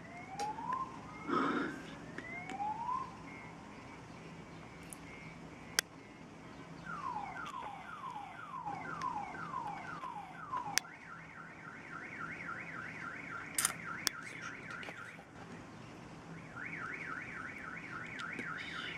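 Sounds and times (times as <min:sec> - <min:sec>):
electronic alarm siren: 0:00.0 - 0:04.0, 0:06.8 - 0:15.3, 0:16.3 - 0:18.9
sharp clicks: 0:09.0 - 0:10.9, 0:13.5 - 0:15.0.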